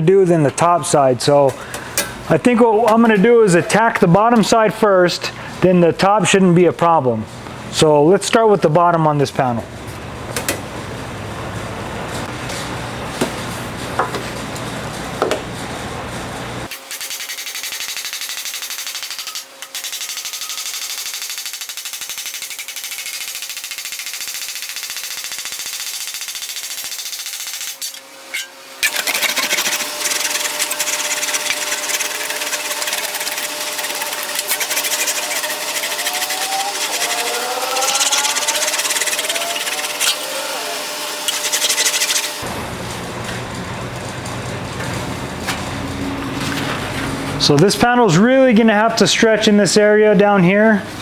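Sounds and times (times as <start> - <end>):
tool strokes on sheet metal: 16.7 - 42.4.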